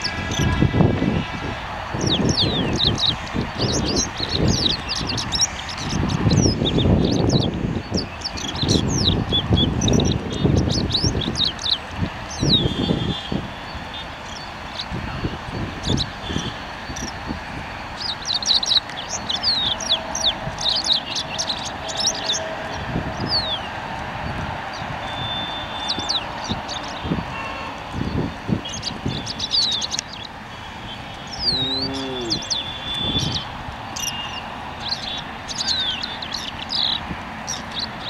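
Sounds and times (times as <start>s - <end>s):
small birds chirping: 2.0s - 38.0s
low rumbling noise: 30.3s - 35.5s.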